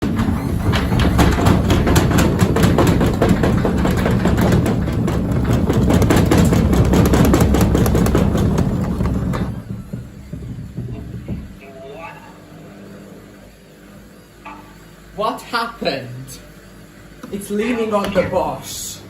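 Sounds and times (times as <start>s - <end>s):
washing machine banging and rattling: 0.0s - 11.7s, 18.0s - 18.6s
washing machine spin rumble: 0.0s - 19.0s.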